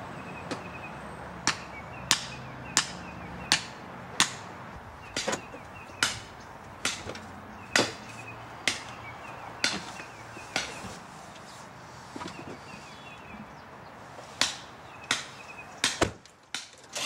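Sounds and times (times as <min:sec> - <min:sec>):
sharp knocks: 0:05.2 - 0:08.0.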